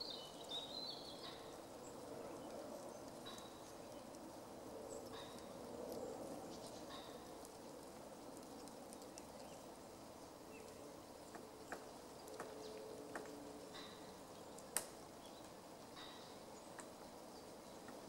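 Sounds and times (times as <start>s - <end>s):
faint background noise: 0.0s - 18.0s
woodpecker tapping on wood: 3.2s - 3.7s, 10.6s - 14.9s.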